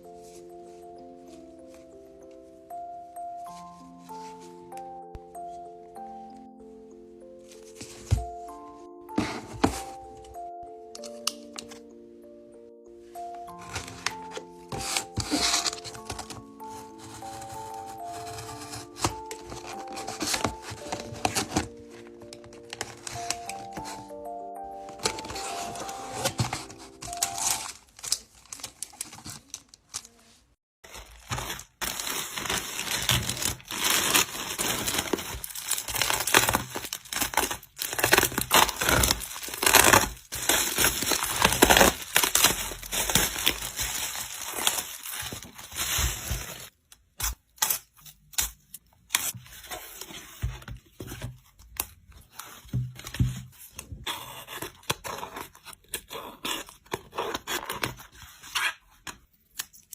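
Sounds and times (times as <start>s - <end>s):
packaging crinkling and tearing: 13.5s - 50.3s.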